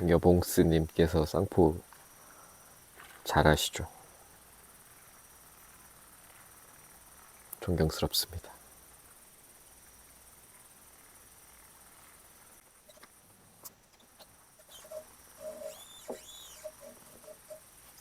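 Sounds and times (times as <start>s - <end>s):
night insects trilling: 0.0s - 18.0s
small animal chirping: 12.9s - 17.8s.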